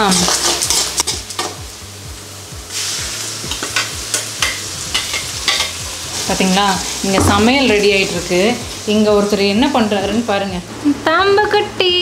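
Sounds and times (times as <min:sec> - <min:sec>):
food frying in oil: 0:00.0 - 0:11.7.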